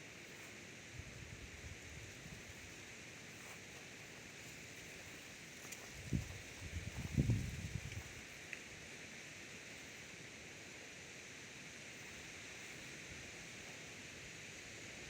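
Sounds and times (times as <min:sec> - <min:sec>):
wind hissing: 0:05.9 - 0:08.2
wind gusts buffeting microphone: 0:06.0 - 0:08.2.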